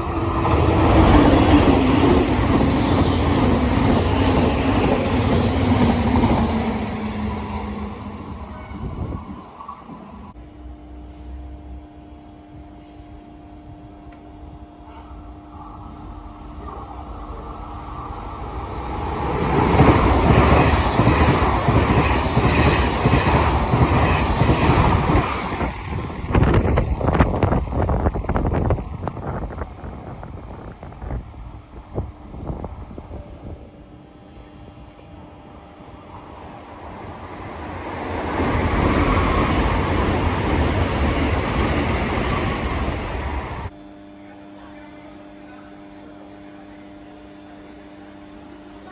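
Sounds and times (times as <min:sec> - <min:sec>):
train passing: 0:00.0 - 0:10.4, 0:15.5 - 0:43.7
train wheel clacks: 0:19.1 - 0:29.3.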